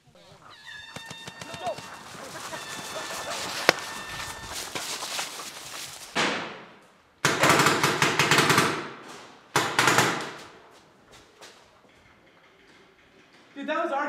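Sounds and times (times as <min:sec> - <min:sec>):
paintball markers firing bursts: 0:07.2 - 0:08.9, 0:09.6 - 0:10.4.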